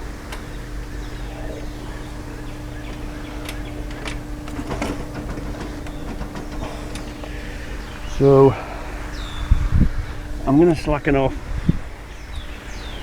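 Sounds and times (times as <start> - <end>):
steady droning hum: 0.0 - 13.0
tools clicking and knocking: 2.9 - 7.4.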